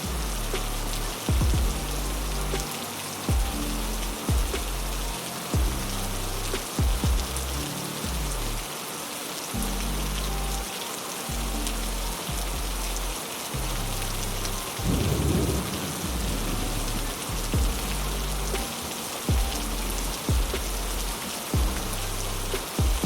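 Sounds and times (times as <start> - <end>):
heavy rain hissing: 0.0 - 23.0
thunder rumbling: 14.8 - 18.6.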